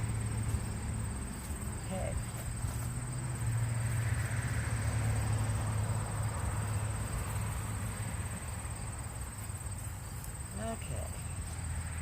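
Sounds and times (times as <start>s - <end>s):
high thin insect drone: 0.0s - 12.0s
rustle of loose soil: 0.3s - 4.1s, 6.5s - 11.8s.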